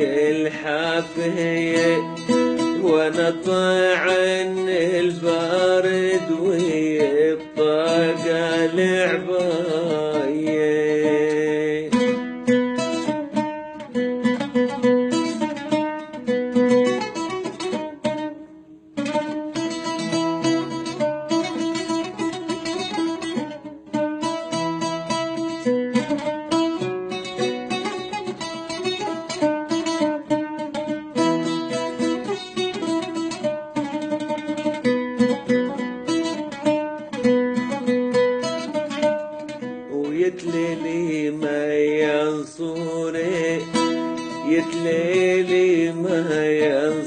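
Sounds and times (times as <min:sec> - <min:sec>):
plucked string instrument: 0:00.0 - 0:47.0.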